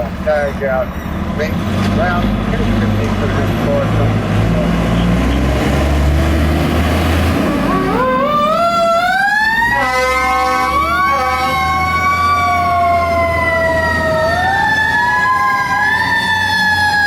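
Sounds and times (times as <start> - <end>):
truck engine running: 0.0 - 15.1
fire truck siren wailing: 2.4 - 17.0
horn blasts: 9.7 - 11.8.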